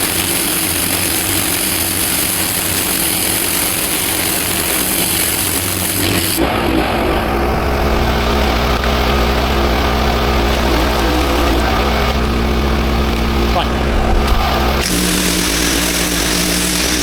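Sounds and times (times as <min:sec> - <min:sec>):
high-pressure spray hissing on paving: 0:00.0 - 0:06.5, 0:14.6 - 0:17.0
pressure washer engine hum: 0:00.0 - 0:17.0.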